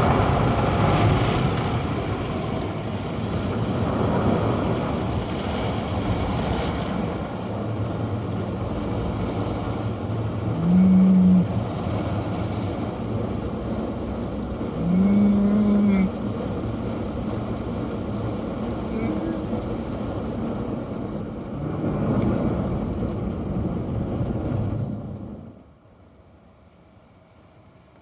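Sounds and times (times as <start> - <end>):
car cabin noise: 7.5 - 25.0.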